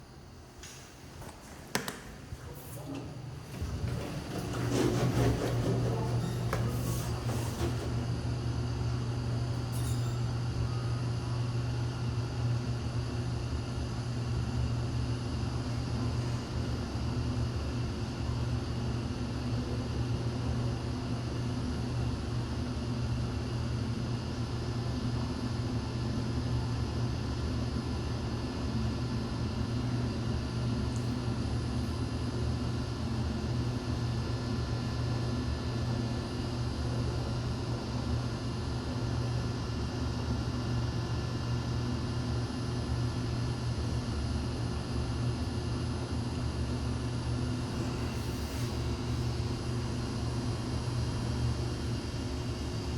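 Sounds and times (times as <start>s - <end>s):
elevator car humming: 0.0s - 11.2s.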